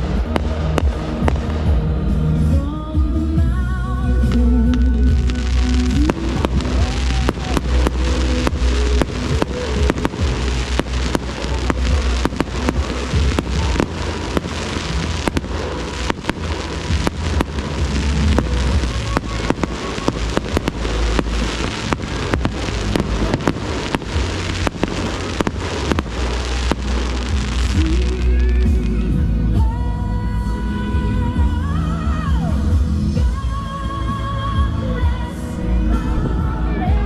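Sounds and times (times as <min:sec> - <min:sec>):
fireworks cracking and popping: 0:00.0 - 0:02.6, 0:04.2 - 0:29.8
crackling hiss: 0:00.0 - 0:03.4, 0:04.1 - 0:29.8
bass-heavy show music: 0:00.0 - 0:37.0.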